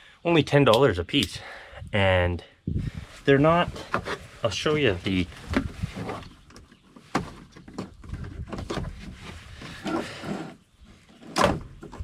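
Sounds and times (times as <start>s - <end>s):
rustling: 3.0s - 12.0s.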